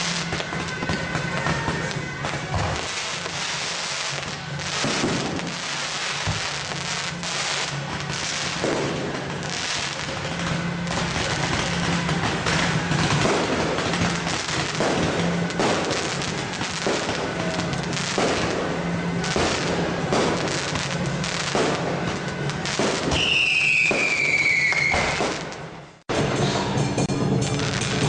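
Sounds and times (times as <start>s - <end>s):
firecrackers crackling: 0.0s - 26.4s, 27.0s - 28.0s
firework whistle falling in pitch: 22.9s - 25.6s.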